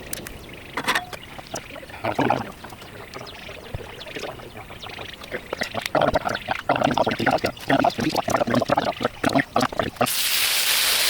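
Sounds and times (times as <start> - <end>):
food sizzling in hot oil: 10.1 - 11.0.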